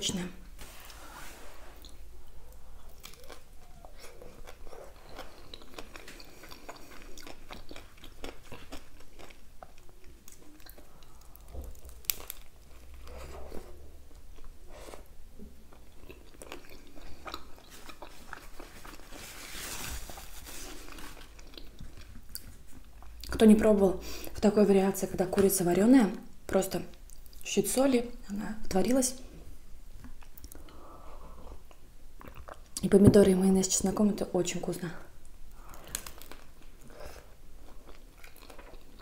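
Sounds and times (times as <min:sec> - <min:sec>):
biting and chewing wrap: 0:02.8 - 0:13.2.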